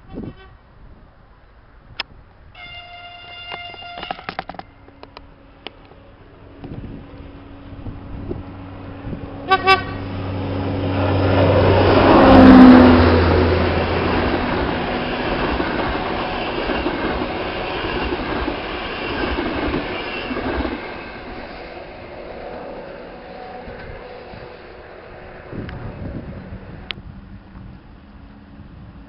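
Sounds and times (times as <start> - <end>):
train horn toots: 0.0 - 0.6, 2.6 - 5.0, 9.4 - 10.2, 22.7 - 26.1
diesel locomotive engine drone: 0.0 - 29.0.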